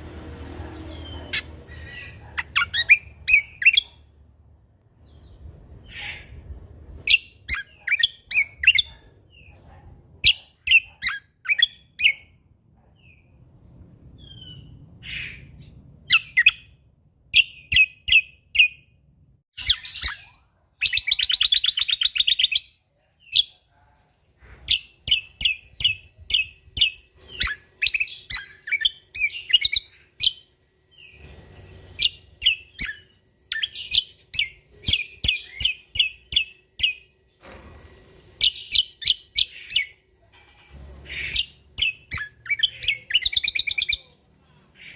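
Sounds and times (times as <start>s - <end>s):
fast bird trill: 1.0s - 3.9s.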